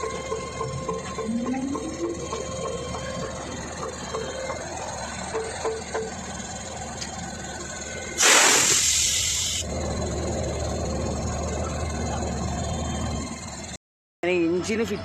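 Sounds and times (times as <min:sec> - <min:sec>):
air brake hiss: 0:08.2 - 0:09.6.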